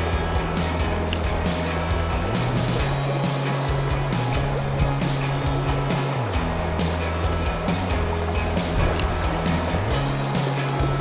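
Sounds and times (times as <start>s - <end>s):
background music with bass line: 0.0s - 11.0s.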